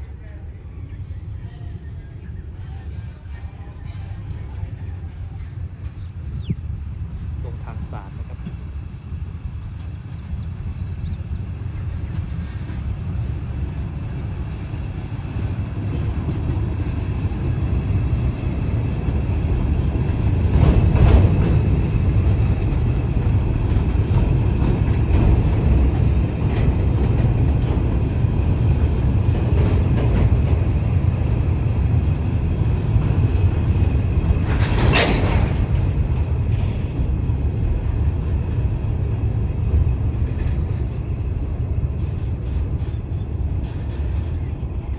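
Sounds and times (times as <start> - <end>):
train rumbling past: 0.0 - 44.9
sharp train clank: 15.5 - 44.9.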